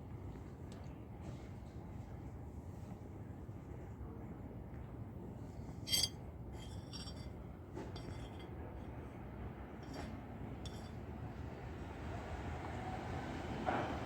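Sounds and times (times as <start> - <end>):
low steady rumble: 5.7 - 11.3.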